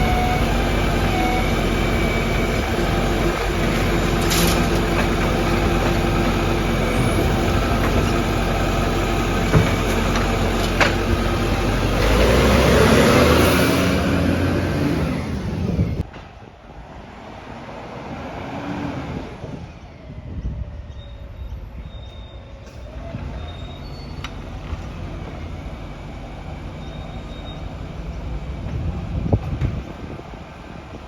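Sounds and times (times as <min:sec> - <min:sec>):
garbage truck engine running: 0:00.0 - 0:16.1, 0:22.7 - 0:31.0
faint high-pitched squeals: 0:19.6 - 0:24.5.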